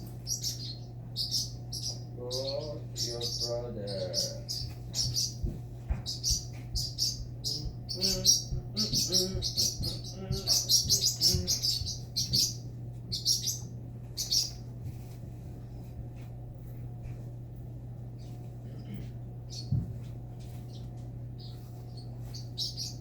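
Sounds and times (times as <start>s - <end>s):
parrot chirping: 0.3s - 5.5s, 6.1s - 14.6s, 21.4s - 23.0s.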